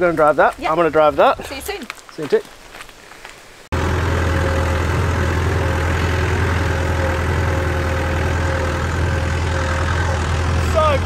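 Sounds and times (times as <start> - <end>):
vehicle engine droning: 3.7 - 11.0.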